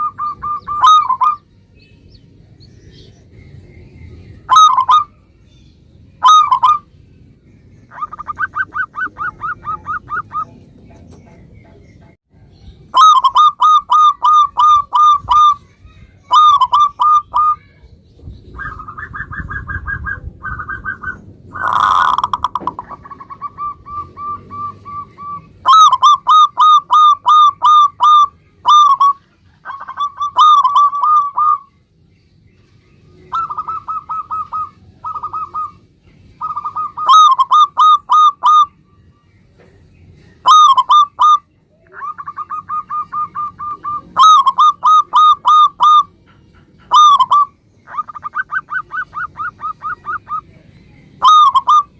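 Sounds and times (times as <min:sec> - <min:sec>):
dove cooing: 0:00.0 - 0:01.4, 0:04.5 - 0:05.2, 0:06.2 - 0:06.9, 0:07.9 - 0:11.8, 0:12.9 - 0:15.6, 0:16.3 - 0:17.7, 0:18.5 - 0:31.7, 0:33.2 - 0:38.7, 0:40.4 - 0:50.6, 0:51.2 - 0:51.9.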